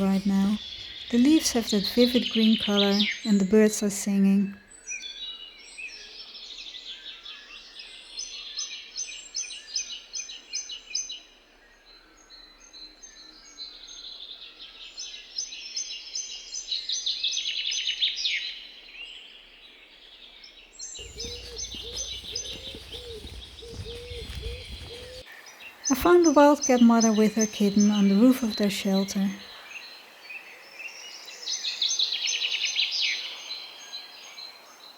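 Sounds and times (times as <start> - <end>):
songbirds singing: 0.0 - 34.9
lower bird call: 21.0 - 30.0.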